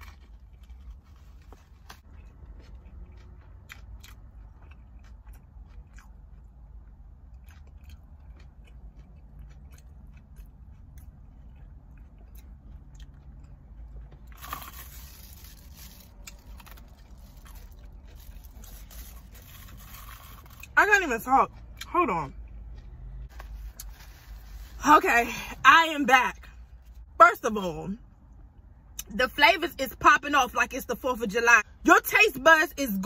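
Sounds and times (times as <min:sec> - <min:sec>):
chewing and crunching: 0:00.0 - 0:24.8.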